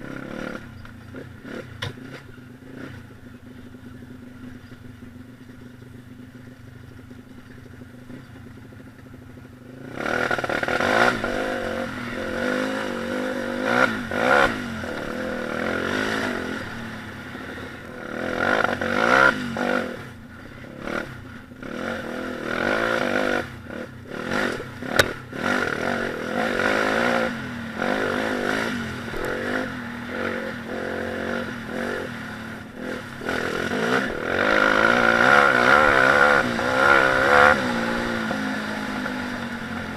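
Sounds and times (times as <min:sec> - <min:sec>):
pit bike engine revving: 0:00.0 - 0:39.9
sharp click: 0:24.5 - 0:25.2.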